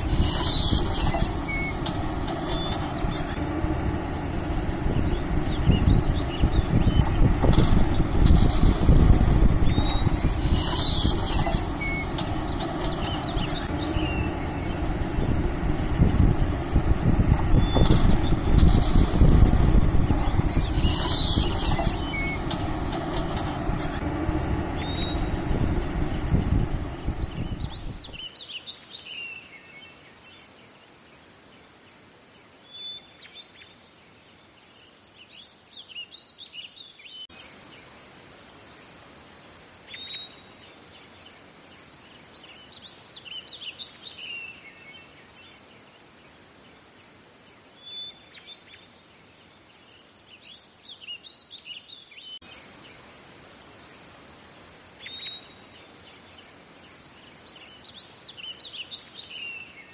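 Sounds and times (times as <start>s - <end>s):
birds chirping: 0.0s - 28.7s
faint steady hiss: 0.0s - 59.9s.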